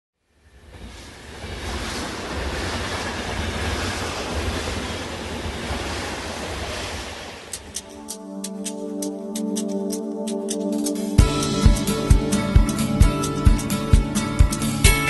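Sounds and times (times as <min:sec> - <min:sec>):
steady rushing noise: 0:00.4 - 0:15.0
music with ticking beat: 0:07.5 - 0:15.0.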